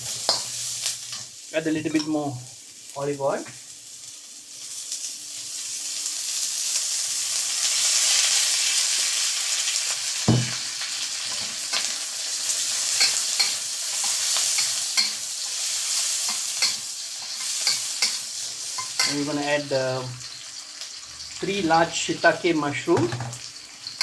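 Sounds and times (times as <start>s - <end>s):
onion and garlic sizzling in oil: 0.0s - 24.0s
spatula scraping a wok: 12.8s - 19.2s.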